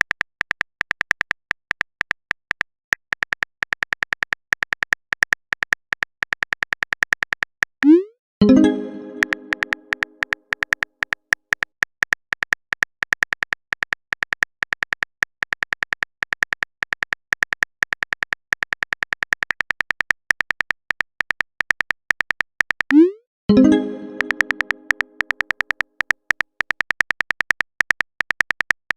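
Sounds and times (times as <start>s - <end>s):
typing clicks sound effect: 7.8s - 10.8s, 22.9s - 25.8s.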